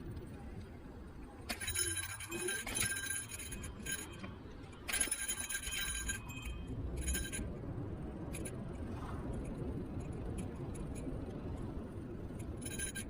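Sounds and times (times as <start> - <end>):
scooter ride rumble: 0.0 - 13.0
metallic jingling and rattling: 1.5 - 7.6, 12.4 - 13.0.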